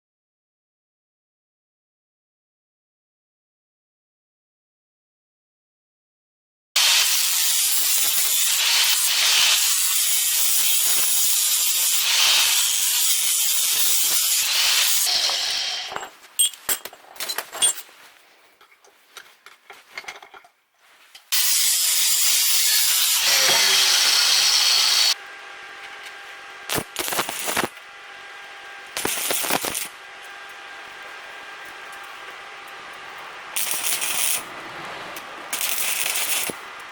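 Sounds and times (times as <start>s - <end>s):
welding arc hissing: 6.8s - 15.9s, 21.3s - 36.9s.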